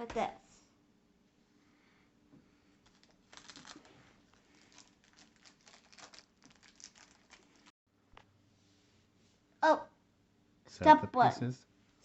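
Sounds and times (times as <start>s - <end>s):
rustling: 2.8s - 7.7s.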